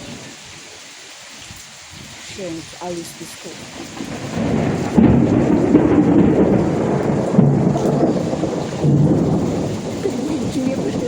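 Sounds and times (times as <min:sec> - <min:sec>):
heavy rain: 0:00.0 - 0:11.0
thunder rumbling: 0:01.9 - 0:11.0.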